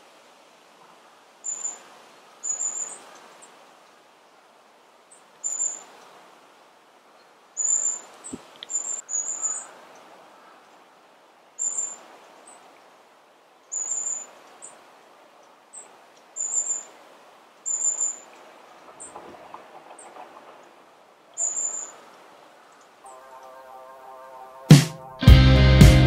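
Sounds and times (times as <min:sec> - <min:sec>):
high-pitched bird calls: 0:07.6 - 0:09.7.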